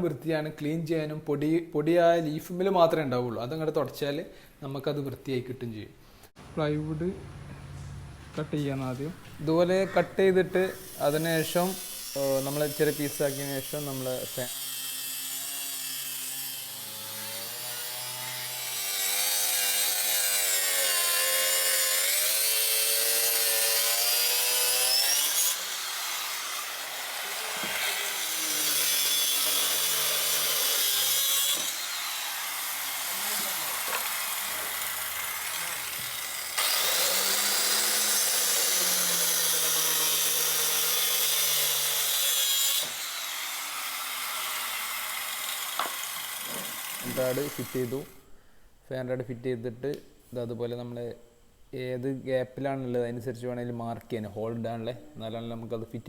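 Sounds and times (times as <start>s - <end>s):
power saw cutting plywood: 9.1s - 48.2s.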